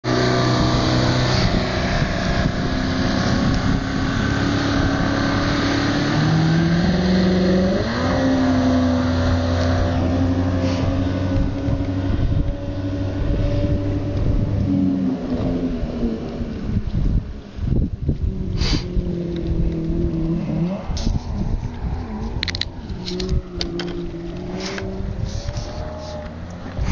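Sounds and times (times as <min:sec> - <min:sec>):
rush of wind and water: 0:00.0 - 0:26.9
outboard motor running at speed: 0:00.1 - 0:07.8, 0:08.6 - 0:20.4.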